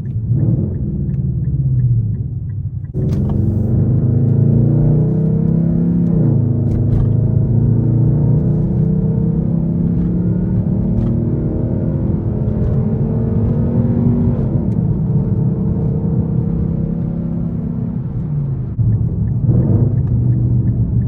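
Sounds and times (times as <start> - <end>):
car exhaust accelerating: 0.0 - 21.0.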